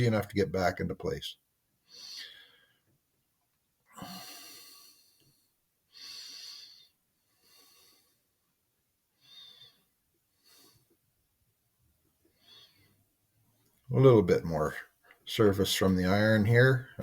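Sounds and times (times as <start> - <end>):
person breathing close: 1.8 - 2.9, 3.9 - 8.3, 9.2 - 11.0, 12.3 - 13.0.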